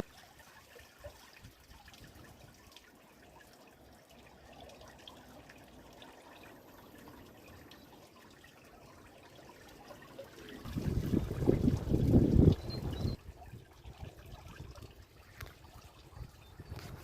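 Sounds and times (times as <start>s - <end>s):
faint trickling water: 0.0s - 17.0s
small water drips: 0.0s - 17.0s.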